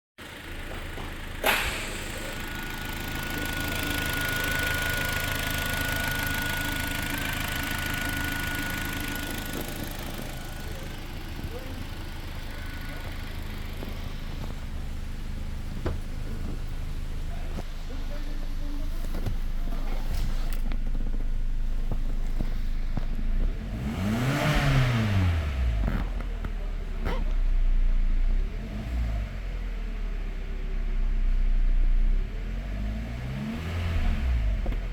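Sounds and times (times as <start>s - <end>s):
petrol engine idling: 0.2s - 28.3s
sharp knock: 1.4s - 2.2s.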